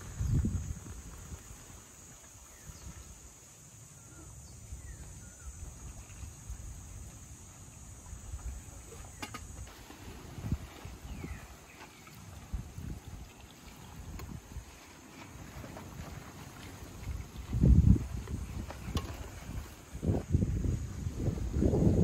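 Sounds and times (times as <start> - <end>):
gusting wind rumble: 0.0 - 1.5, 17.2 - 22.0
faint chirps: 3.8 - 6.5.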